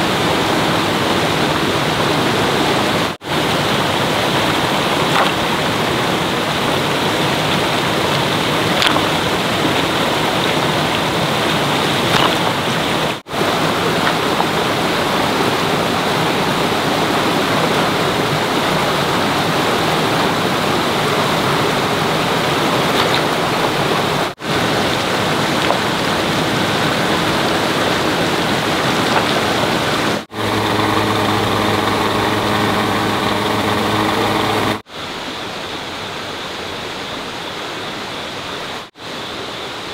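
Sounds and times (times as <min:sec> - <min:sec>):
rushing flowing water: 0:00.0 - 0:39.9
low machine hum: 0:30.3 - 0:34.8.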